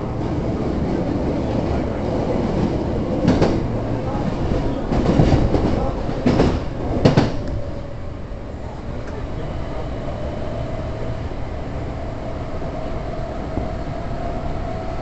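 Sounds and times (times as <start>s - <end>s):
electric train rumbling: 0.0s - 15.0s
train wheels clacking over rail joints: 2.4s - 7.7s.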